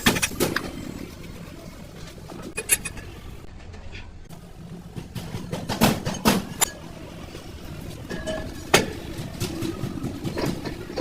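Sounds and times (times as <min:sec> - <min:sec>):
tools clinking on metal parts: 0:02.5 - 0:03.1.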